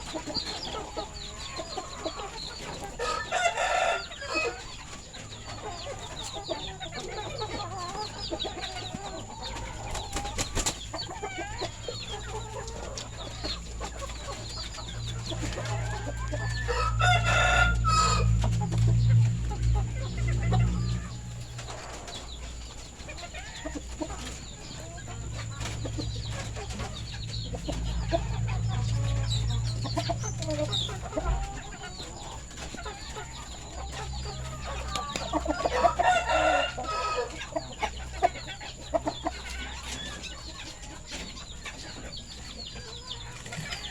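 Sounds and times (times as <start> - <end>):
chickens clucking: 0.0 - 43.9
rooster crowing: 2.9 - 4.6, 15.3 - 19.2, 34.6 - 37.6
low rumble: 14.8 - 22.7.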